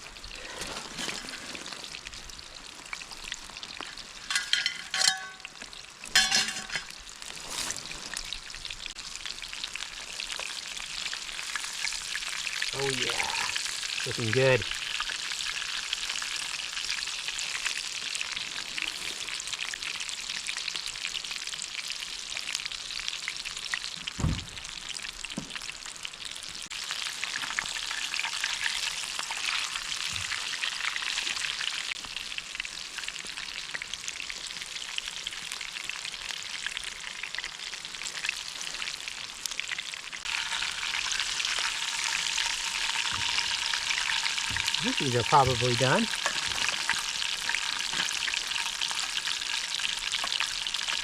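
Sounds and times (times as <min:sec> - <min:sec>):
fish sizzling in hot oil: 0:00.0 - 0:51.0
low thump: 0:24.2 - 0:24.7.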